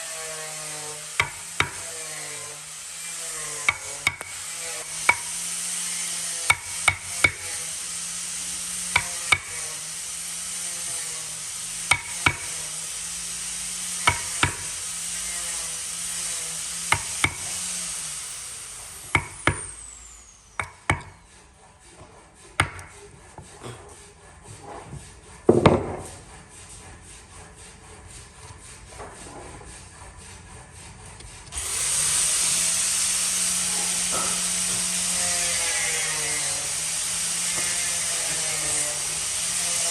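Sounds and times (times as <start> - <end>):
power tool running: 0.0 - 23.0, 31.4 - 39.9.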